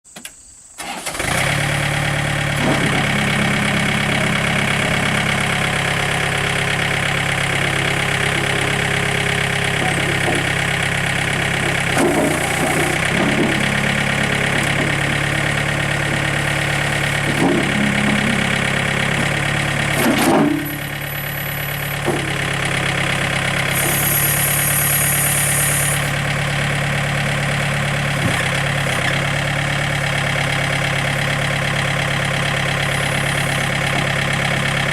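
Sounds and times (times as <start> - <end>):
diesel engine idling: 0.8 - 34.9
metal knocks and clanks: 9.7 - 10.7, 11.6 - 21.0, 22.0 - 22.8.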